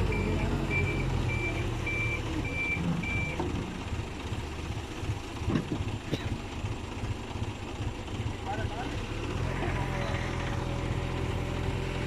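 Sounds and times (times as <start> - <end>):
diesel engine running: 0.0 - 12.0
reversing alarm beeping: 0.1 - 3.4.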